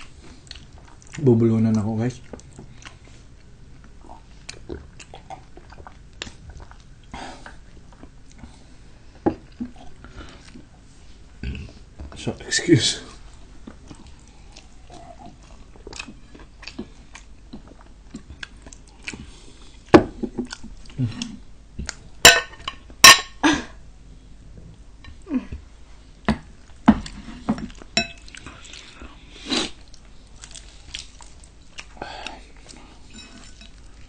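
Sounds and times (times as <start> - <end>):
chewing and biting food: 13.7 - 19.7, 29.6 - 34.0.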